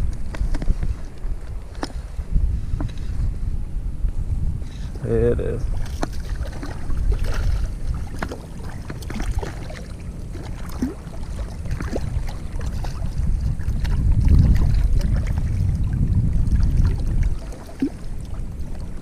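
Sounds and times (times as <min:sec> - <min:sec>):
wind buffeting microphone: 0:00.0 - 0:19.0
water lapping: 0:05.6 - 0:19.0
small splashes and clicks: 0:05.8 - 0:15.6, 0:16.5 - 0:18.9.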